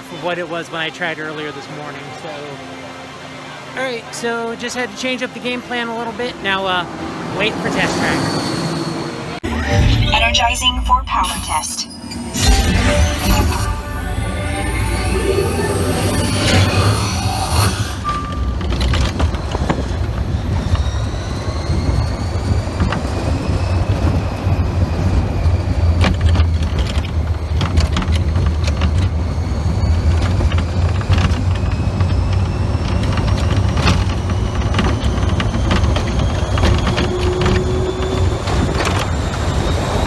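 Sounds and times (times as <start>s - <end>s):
ride vehicle rumbling on track: 3.4s - 11.4s, 12.0s - 40.0s
high whines rising in pitch: 6.0s - 26.3s.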